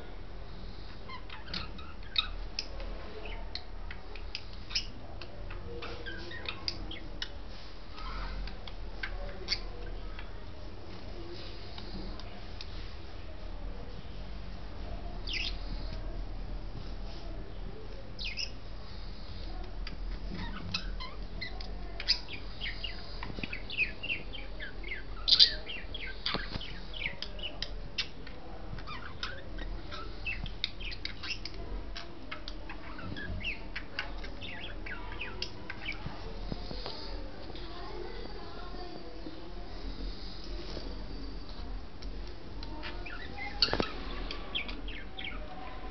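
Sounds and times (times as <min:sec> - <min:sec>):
budgerigars chirping: 0:15.2 - 0:15.9, 0:18.2 - 0:18.6, 0:20.4 - 0:28.2, 0:28.8 - 0:36.1, 0:42.8 - 0:45.5.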